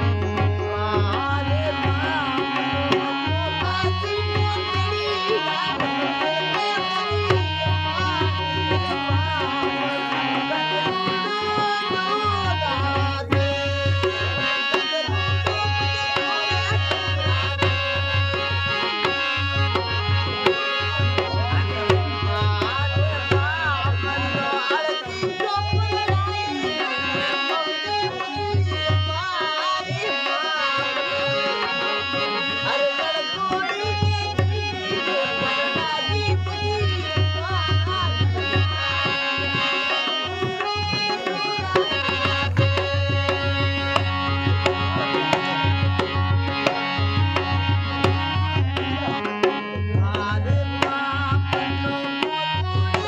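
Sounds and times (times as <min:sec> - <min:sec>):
hand drum rhythm: 0:00.0 - 0:53.0.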